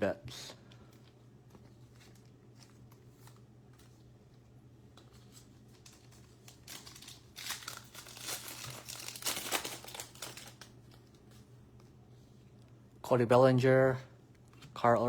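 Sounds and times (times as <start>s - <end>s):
plastic wrapper crinkling: 5.1s - 11.3s.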